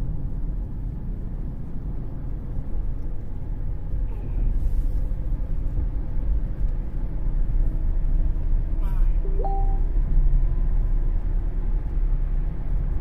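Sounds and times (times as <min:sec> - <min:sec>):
road rumble inside car cabin: 0:00.0 - 0:13.0.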